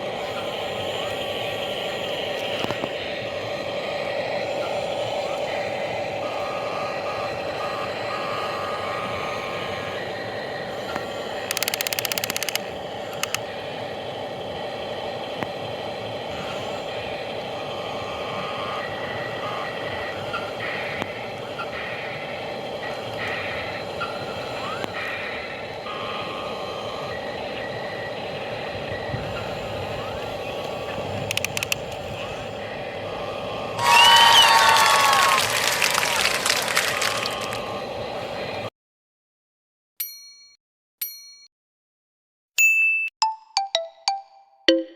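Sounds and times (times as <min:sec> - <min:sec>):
excavator running: 0:00.0 - 0:38.7
rapid clicking rattle: 0:11.4 - 0:13.4, 0:31.2 - 0:32.0.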